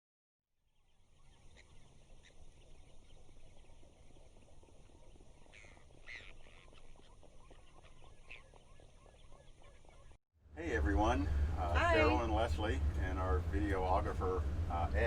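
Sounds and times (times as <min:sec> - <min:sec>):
bird calls: 0:00.7 - 0:10.2.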